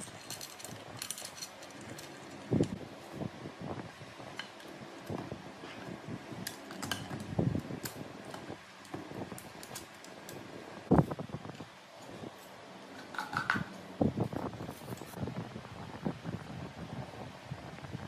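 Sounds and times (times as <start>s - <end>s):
metal parts clinking: 0.0s - 2.7s
faint background hum: 0.0s - 18.0s.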